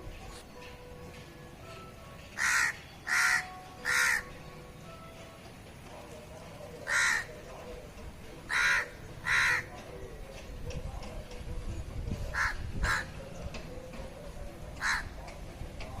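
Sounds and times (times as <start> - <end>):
crow cawing: 2.4 - 4.3, 6.8 - 7.4, 8.5 - 9.7, 12.3 - 13.1, 14.8 - 15.2.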